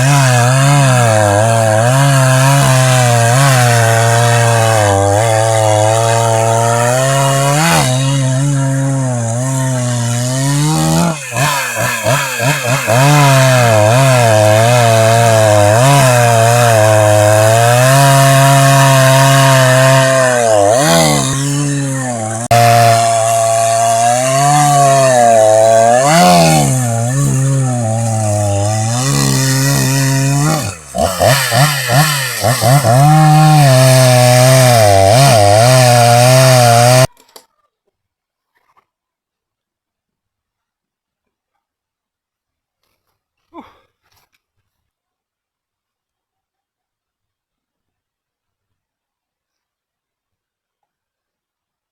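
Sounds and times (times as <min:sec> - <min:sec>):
chainsaw cutting wood: 0:00.0 - 0:37.3.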